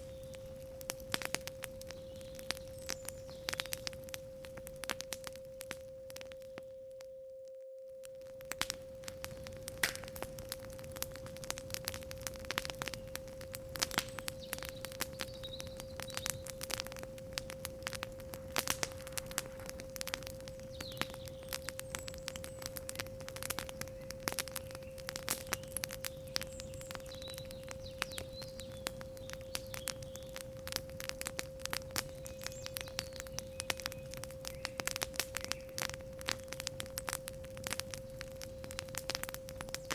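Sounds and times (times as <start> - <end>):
faint bird chirps: 0.0 - 0.7, 1.7 - 4.0, 14.0 - 16.6, 20.5 - 23.0, 23.6 - 30.5, 32.0 - 36.0
campfire crackling and popping: 0.0 - 7.1, 8.0 - 39.9
steady sine tone: 5.1 - 10.9.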